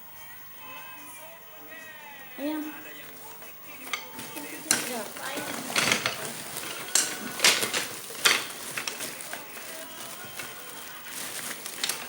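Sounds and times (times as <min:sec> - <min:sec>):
drumsticks clattering together: 0:03.9 - 0:12.0.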